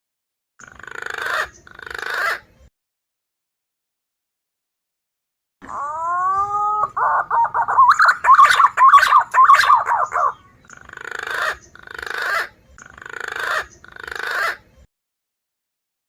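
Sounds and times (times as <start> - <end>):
rasping bird phrases: 5.6 - 14.7
warbling whistled bird notes: 5.7 - 14.6.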